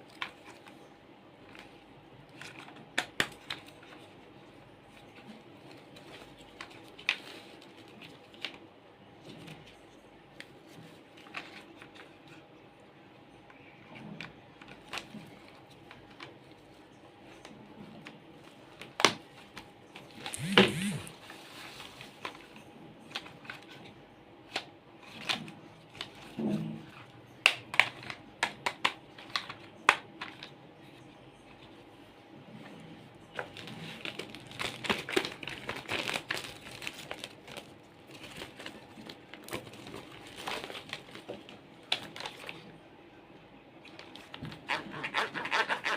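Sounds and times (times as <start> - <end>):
faint room hum: 0.0 - 45.9
toys clicking and tapping: 20.3 - 21.1.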